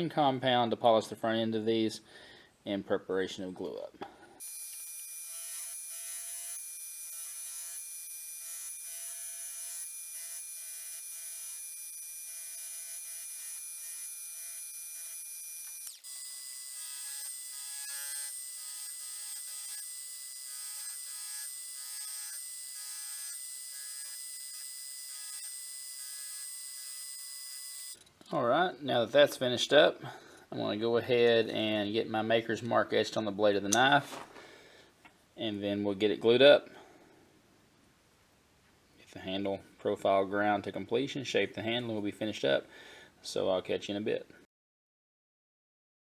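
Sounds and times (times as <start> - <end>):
electric motor whine: 4.4 - 28.0.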